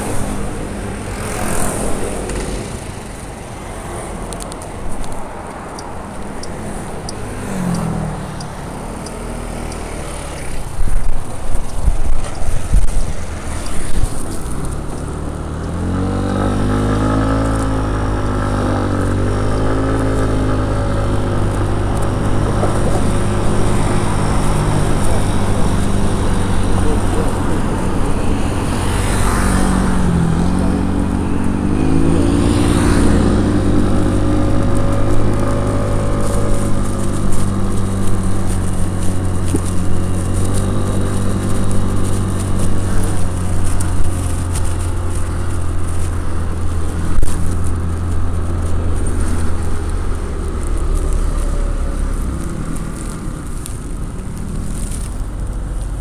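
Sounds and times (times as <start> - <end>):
motor vehicle engine droning: 0.0 - 56.0.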